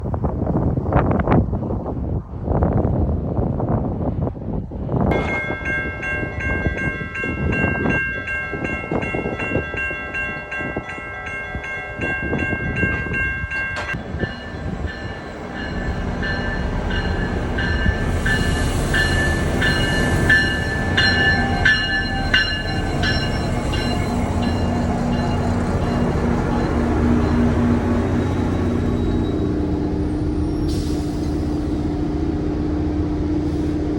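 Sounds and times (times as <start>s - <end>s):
train rumbling: 0.0s - 33.9s
bell ringing rapidly: 14.4s - 26.8s
wheel and brake squeals: 28.2s - 29.8s.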